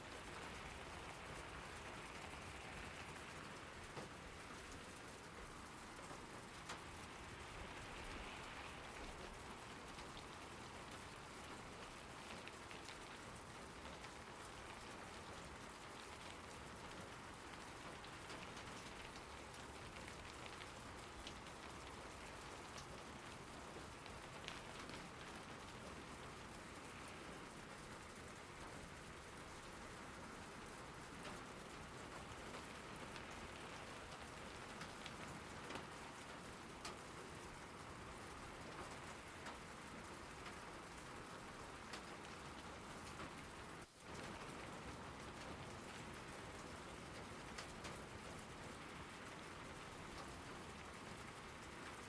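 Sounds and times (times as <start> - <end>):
steady rain falling: 0.0 - 52.0
raindrops ticking: 0.3 - 29.7, 30.3 - 52.0.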